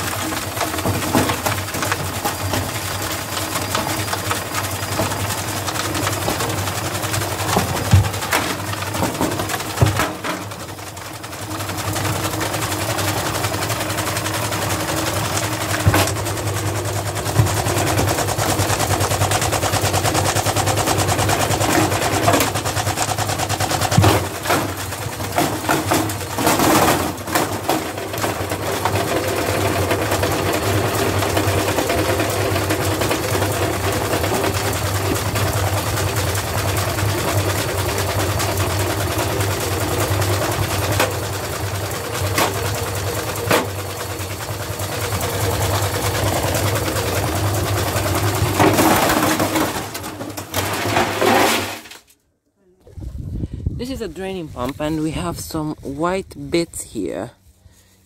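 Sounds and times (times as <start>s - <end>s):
washing machine motor hum: 0.0s - 49.8s
washing machine rattling and banging: 0.0s - 52.0s.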